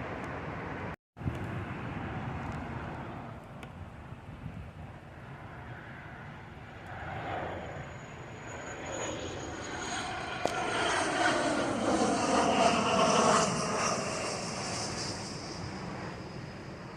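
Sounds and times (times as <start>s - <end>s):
airplane passing overhead: 0.0s - 16.9s
thin high engine whine: 4.9s - 16.9s.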